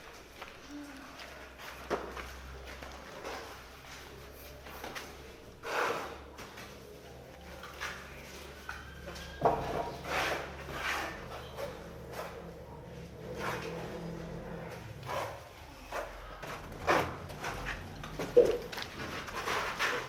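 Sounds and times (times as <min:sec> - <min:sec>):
scrapes and knocks: 0:07.6 - 0:20.0.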